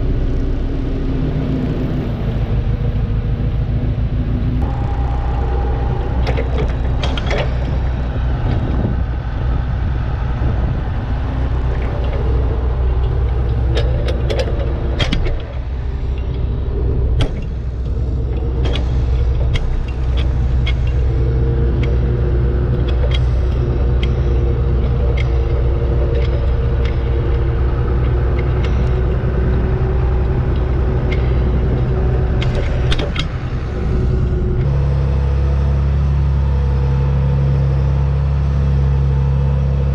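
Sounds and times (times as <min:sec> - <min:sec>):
tractor engine droning: 0:00.0 - 0:39.9
metal clicks and clanks: 0:05.8 - 0:09.6, 0:11.3 - 0:34.8.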